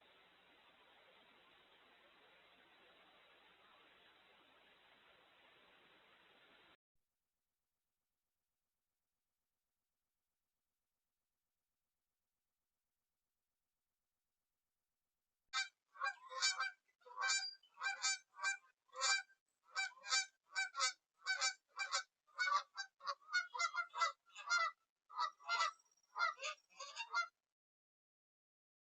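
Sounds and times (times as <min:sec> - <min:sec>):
bird honking calls: 0:15.6 - 0:19.2, 0:19.8 - 0:27.3.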